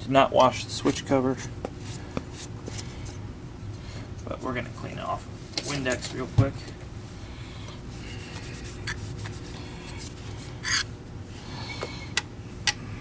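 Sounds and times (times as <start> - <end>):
cloth rubbing on plastic: 8.2 - 10.2.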